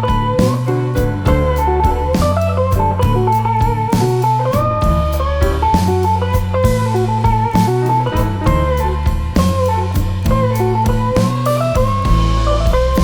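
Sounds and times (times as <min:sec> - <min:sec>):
bass line: 0:00.0 - 0:13.0
blues guitar melody: 0:00.0 - 0:13.0
drum beat: 0:00.0 - 0:13.0.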